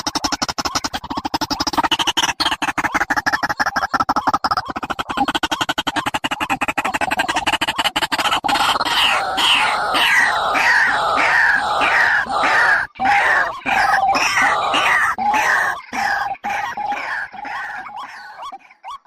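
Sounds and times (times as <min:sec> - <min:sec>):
bird fast rattle: 0:00.0 - 0:15.0
bird harsh descending calls: 0:08.5 - 0:19.0.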